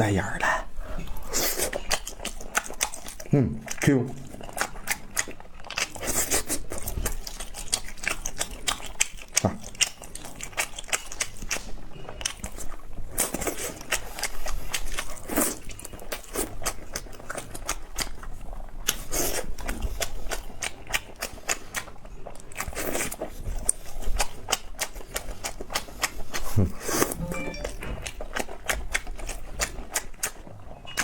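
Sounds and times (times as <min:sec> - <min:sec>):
person chewing with wet mouth clicks: 0:01.3 - 0:31.0.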